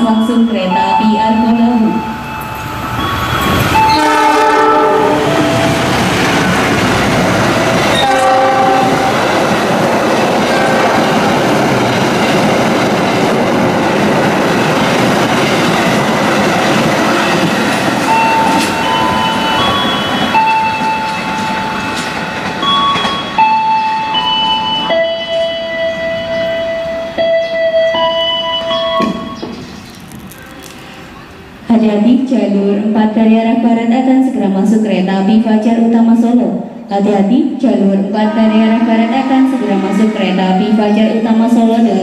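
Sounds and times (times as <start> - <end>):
train coaches clickety-clack: 0.0 - 31.5
locomotive horn blasts: 3.8 - 5.8, 7.8 - 9.2, 10.5 - 11.2, 38.3 - 41.0.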